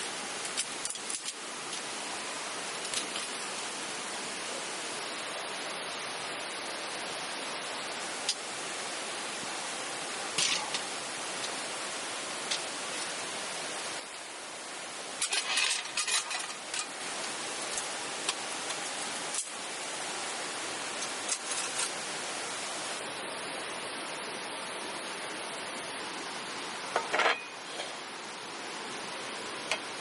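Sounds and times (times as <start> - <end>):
steady rushing hiss: 0.0 - 30.0
small hard objects clinking: 15.2 - 17.0.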